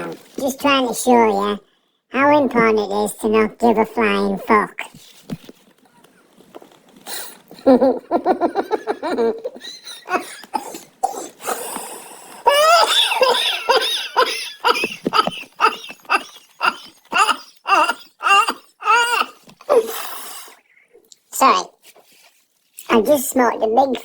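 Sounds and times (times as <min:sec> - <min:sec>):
man coughing and laughing: 0:09.2 - 0:11.4, 0:12.6 - 0:19.4.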